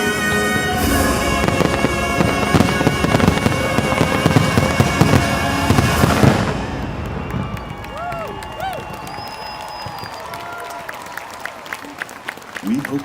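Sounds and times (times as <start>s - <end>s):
orchestral music: 0.0s - 8.6s
fireworks bursting: 0.0s - 10.4s.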